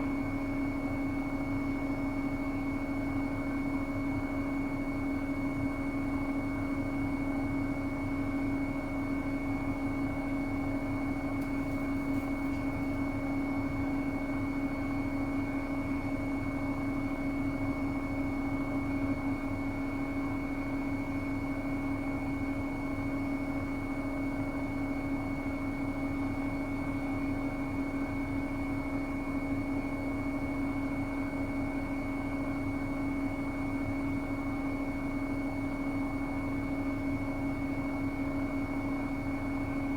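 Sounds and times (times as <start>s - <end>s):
washing machine spinning: 0.0s - 24.6s.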